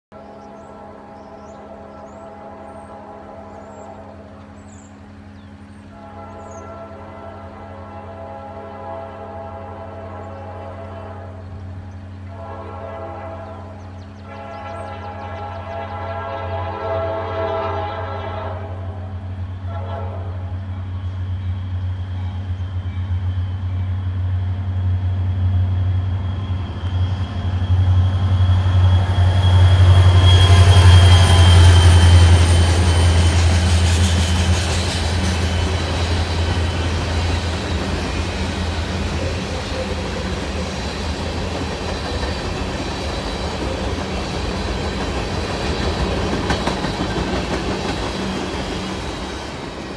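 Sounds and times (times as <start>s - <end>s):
diesel locomotive engine drone: 0.1s - 49.9s
wheels rumbling on rail: 0.1s - 49.9s
high wheel squeal: 26.2s - 45.3s.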